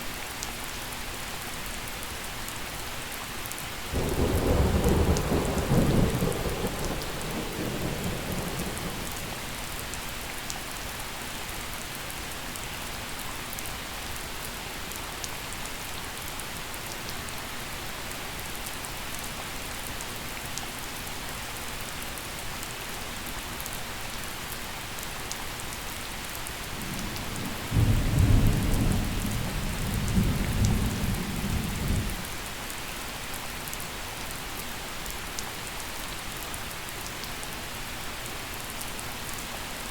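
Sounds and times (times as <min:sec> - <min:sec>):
gentle rain: 0:00.0 - 0:39.9
thunder rumble: 0:04.0 - 0:09.4.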